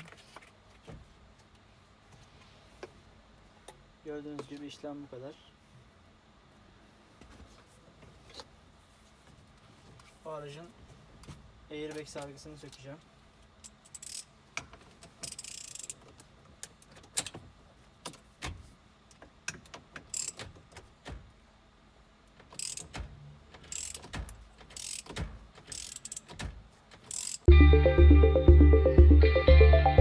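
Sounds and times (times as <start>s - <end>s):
loud music with steady beat: 27.5s - 30.0s.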